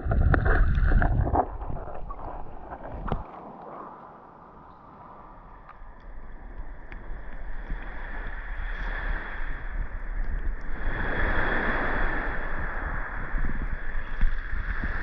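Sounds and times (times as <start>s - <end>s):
sea waves sloshing: 0.0s - 15.0s
wind on microphone: 0.0s - 15.0s.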